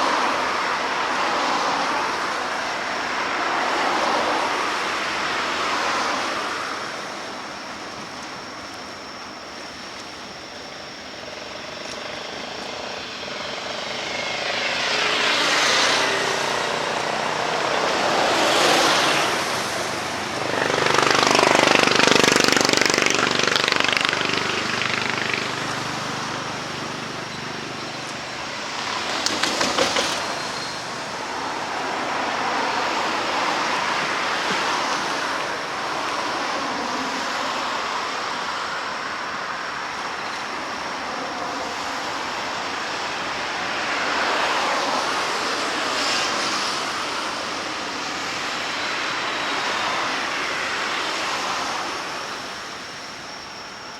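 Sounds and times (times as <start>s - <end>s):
vehicles passing: 0.0s - 53.9s
fluttering vehicle pass: 12.5s - 37.2s.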